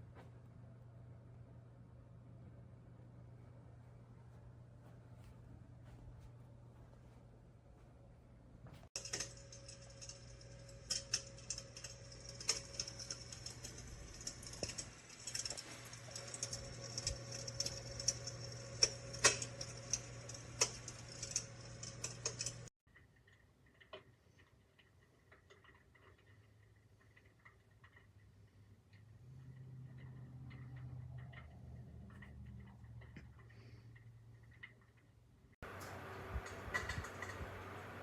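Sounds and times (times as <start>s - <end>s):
simulated fire crackling: 8.8s - 33.5s
steady hiss and low hum: 35.6s - 38.0s.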